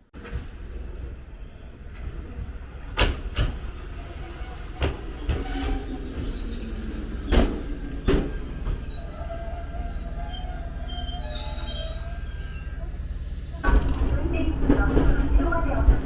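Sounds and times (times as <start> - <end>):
train rumbling on rails: 0.0 - 16.0
train wheels clanking: 1.8 - 15.0
high wheel squeal: 3.9 - 13.6.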